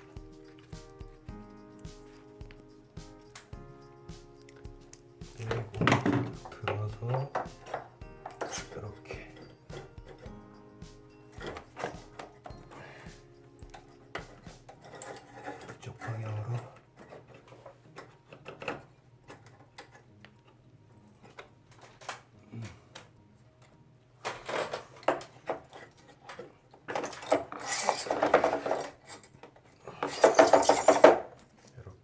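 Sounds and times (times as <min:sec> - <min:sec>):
plastic parts clicking and knocking: 0:04.4 - 0:10.3, 0:11.3 - 0:12.8, 0:13.4 - 0:31.8
plastic clattering and scraping: 0:05.3 - 0:10.3, 0:13.7 - 0:22.3, 0:24.2 - 0:31.9.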